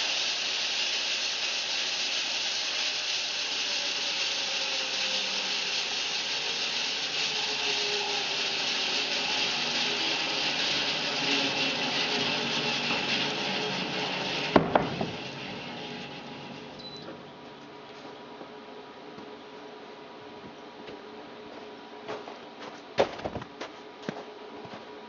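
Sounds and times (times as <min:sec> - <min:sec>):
bandsaw blade sawing log: 0:00.0 - 0:16.8.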